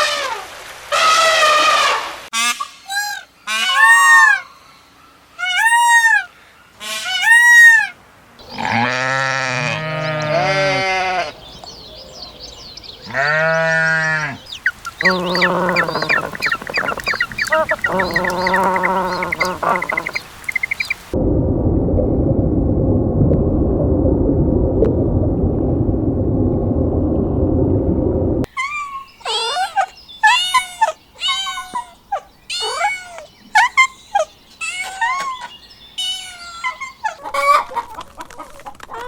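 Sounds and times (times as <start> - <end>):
farm animal calls: 13.0 - 21.2
rapid high chirping: 14.4 - 21.2.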